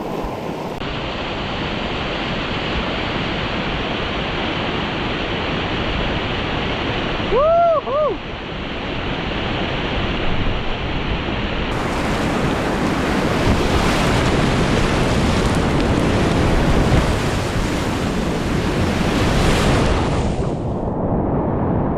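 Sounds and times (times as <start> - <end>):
wind buffeting microphone: 9.0 - 21.9
whitewater rushing: 11.7 - 20.6.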